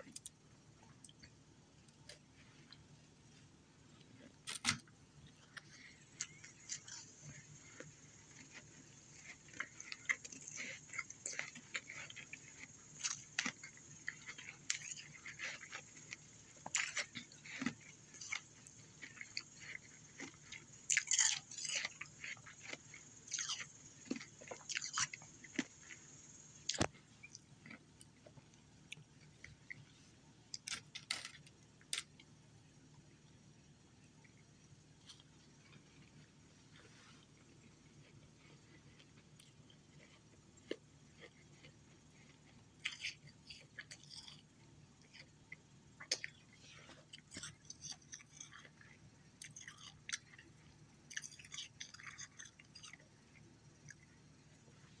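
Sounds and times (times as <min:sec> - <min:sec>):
person chewing ice: 0:05.4 - 0:30.0, 0:36.9 - 0:54.4.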